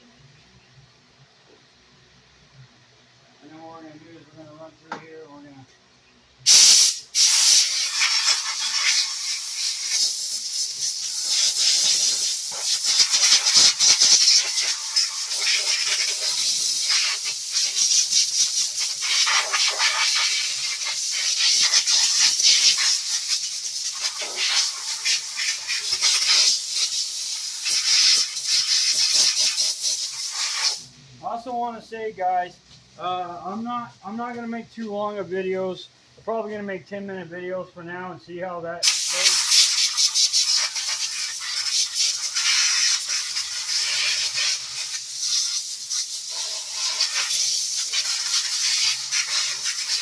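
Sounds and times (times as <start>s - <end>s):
pressurized spray hissing: 6.5s - 30.9s, 38.8s - 50.0s.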